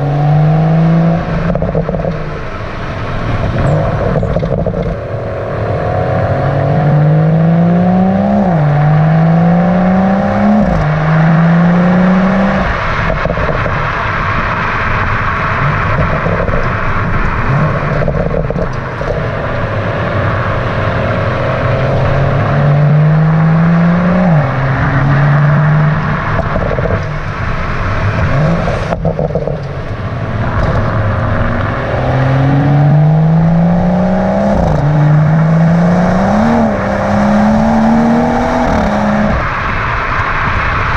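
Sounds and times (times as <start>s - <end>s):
car engine accelerating hard: 0.0s - 40.9s.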